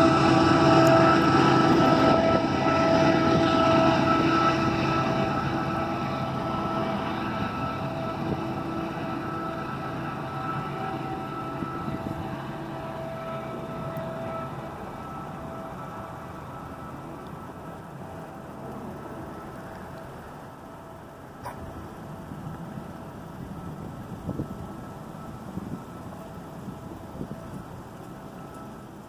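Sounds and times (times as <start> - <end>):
freight train rumbling: 0.0 - 17.0.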